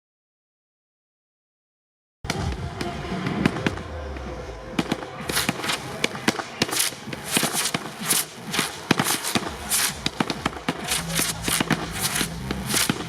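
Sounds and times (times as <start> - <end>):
fireworks bangs and cracks: 2.3 - 13.0
fireworks hissing bursts: 4.8 - 13.0.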